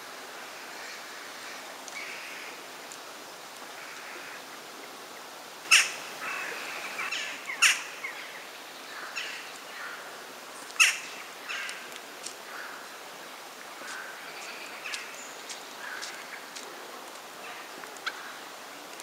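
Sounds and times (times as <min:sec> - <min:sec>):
loud sharp bird calls: 0:05.7 - 0:10.0, 0:10.8 - 0:11.8.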